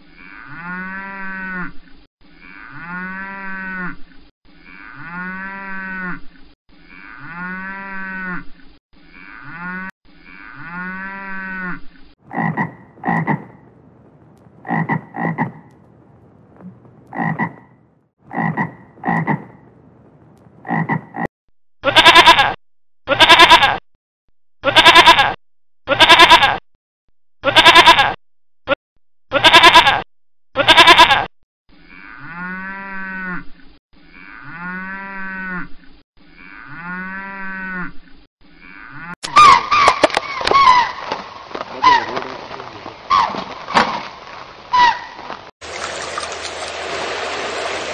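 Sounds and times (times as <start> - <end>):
cow mooing: 0.0 - 1.8, 2.4 - 4.0, 4.6 - 6.3, 6.9 - 8.5, 9.1 - 12.5, 31.9 - 33.5, 34.1 - 35.8, 36.4 - 38.0, 38.6 - 39.2
goat kid bleating: 21.8 - 23.8, 24.6 - 26.6, 27.4 - 28.2, 29.3 - 30.0, 30.6 - 31.3.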